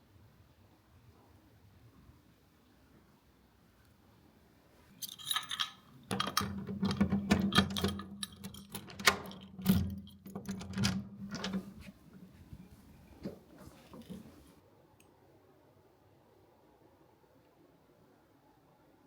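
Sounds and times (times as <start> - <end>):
small objects clicking and clattering: 5.0 - 11.5.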